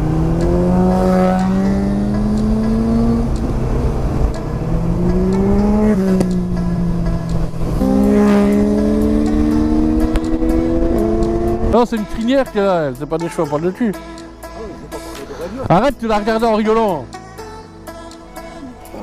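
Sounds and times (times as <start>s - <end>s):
motorcycle engine accelerating: 0.0s - 11.8s.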